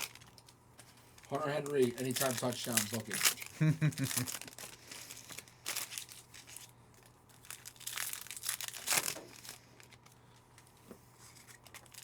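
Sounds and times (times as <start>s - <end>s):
foil wrappers crinkling: 0.0s - 12.0s
cards being handled: 0.8s - 3.5s.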